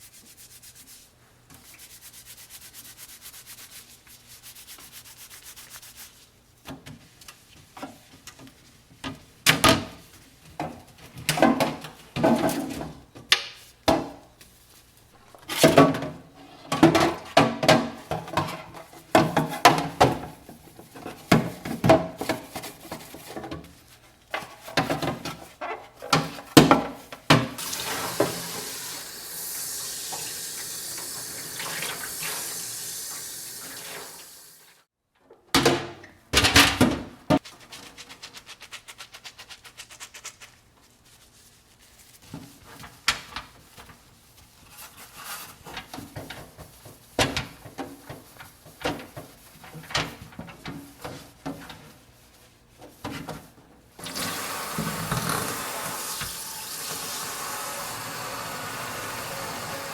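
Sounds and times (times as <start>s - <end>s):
scrubbing dishes: 15.4s - 29.2s
tap water running: 27.3s - 34.8s, 54.0s - 59.9s.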